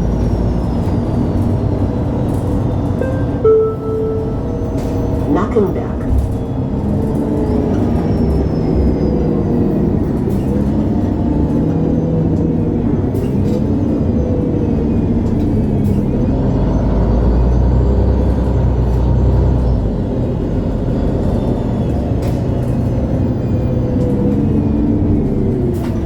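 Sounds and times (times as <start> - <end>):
bus engine running: 0.0 - 26.0.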